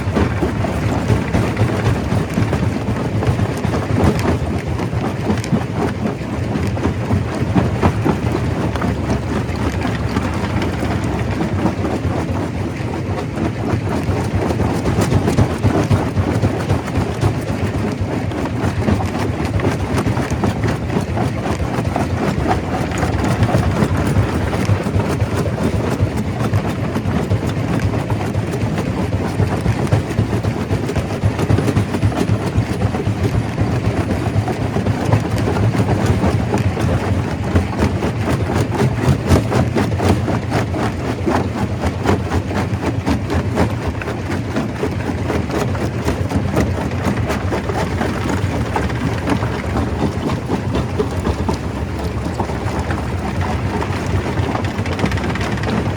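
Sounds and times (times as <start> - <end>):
rock clattering and tumbling: 0.0 - 55.9
stone crusher running: 0.0 - 55.9.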